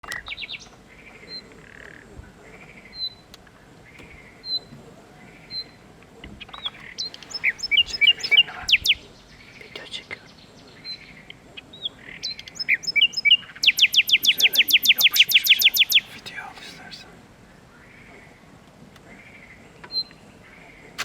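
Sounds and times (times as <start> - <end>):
nightingale singing: 0.0 - 1.8, 2.5 - 17.1.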